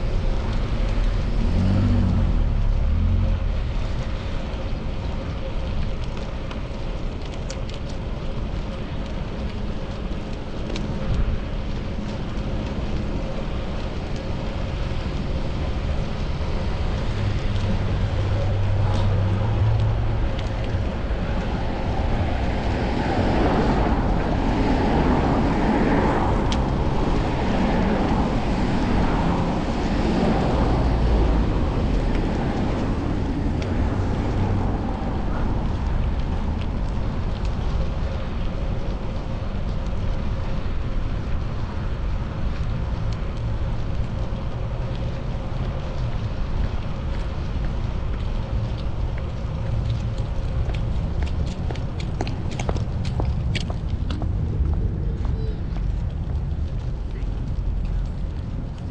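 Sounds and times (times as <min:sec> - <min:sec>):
road and traffic noise: 0:00.0 - 0:58.9
wind on camera microphone: 0:00.0 - 0:58.9.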